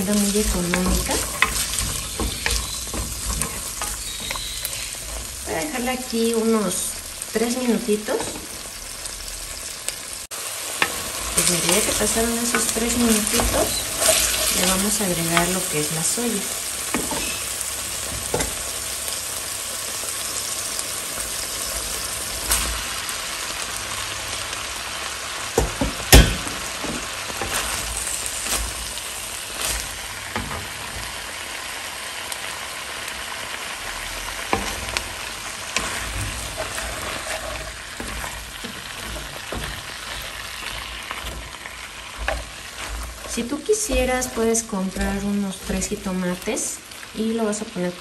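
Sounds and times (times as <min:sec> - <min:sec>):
wooden spoon scraping clay pot: 0:00.0 - 0:06.1, 0:10.8 - 0:15.7, 0:34.5 - 0:46.2
food sizzling in hot oil: 0:00.0 - 0:48.0.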